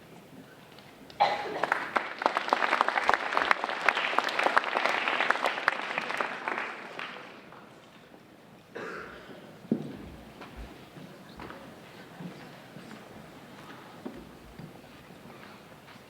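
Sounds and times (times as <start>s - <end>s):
audience applauding: 1.1s - 7.8s.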